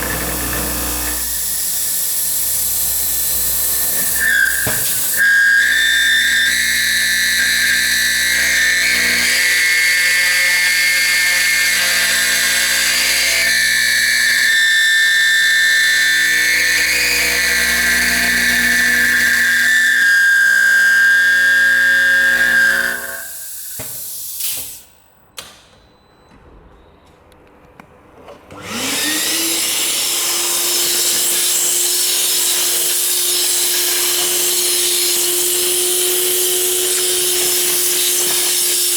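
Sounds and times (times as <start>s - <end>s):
router spindle whine milling steel: 0.0s - 23.8s, 28.6s - 38.9s.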